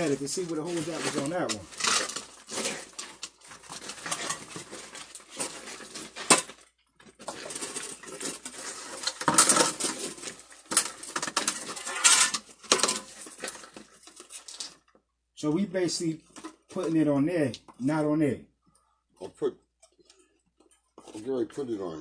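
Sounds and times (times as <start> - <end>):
objects clattering and scraping: 0.0 - 15.0, 16.2 - 17.0.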